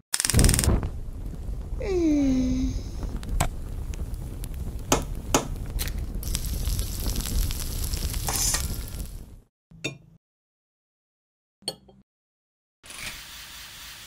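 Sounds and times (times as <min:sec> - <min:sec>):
sharp clicks: 0:00.1 - 0:00.8
food sizzling in a frying pan: 0:01.8 - 0:09.4, 0:12.9 - 0:14.0.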